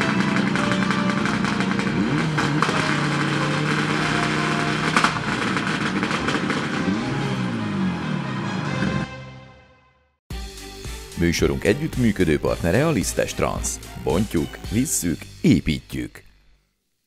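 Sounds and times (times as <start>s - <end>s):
sharp crack: 0.0s - 6.9s
rally car engine revving: 0.0s - 9.1s.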